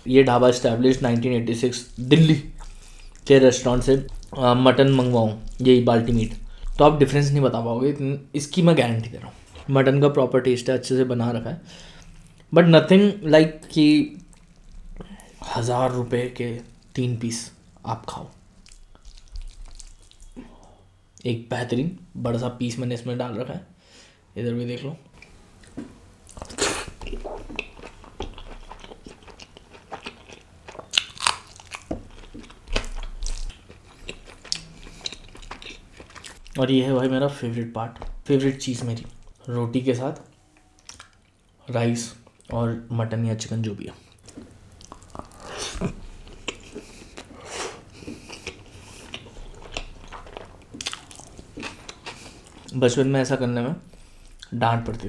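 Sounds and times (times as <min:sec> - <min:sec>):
man chewing food: 0:01.9 - 0:06.9, 0:14.2 - 0:15.5, 0:18.1 - 0:20.8, 0:25.2 - 0:36.6, 0:40.6 - 0:41.6, 0:44.0 - 0:52.8
wet smacking: 0:18.6 - 0:20.4.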